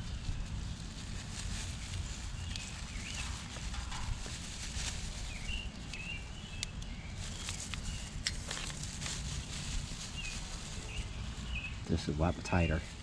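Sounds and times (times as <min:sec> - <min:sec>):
steady low rumble: 0:00.0 - 0:13.0
birds chirping: 0:02.4 - 0:04.3, 0:10.1 - 0:13.0.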